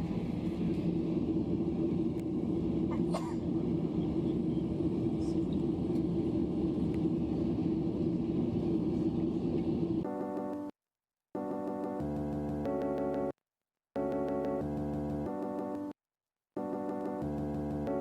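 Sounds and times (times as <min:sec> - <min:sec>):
aircraft cabin rumble: 0:00.0 - 0:10.0
music: 0:10.1 - 0:10.7, 0:11.4 - 0:13.4, 0:14.0 - 0:16.0, 0:16.6 - 0:18.0.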